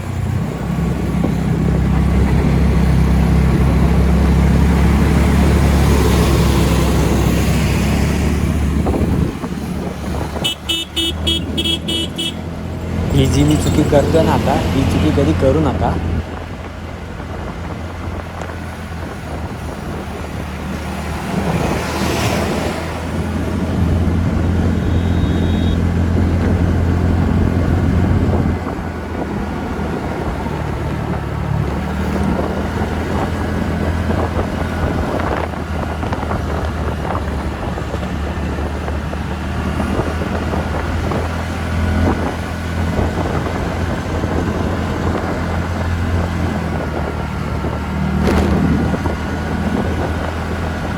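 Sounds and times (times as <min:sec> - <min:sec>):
scooter engine running: 0:00.0 - 0:41.2
wind noise on microphone: 0:00.0 - 0:50.9.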